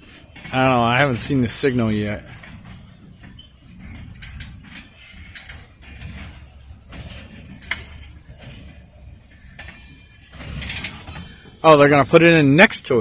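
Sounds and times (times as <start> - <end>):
rail cars creaking and clanking: 0.0 - 13.0.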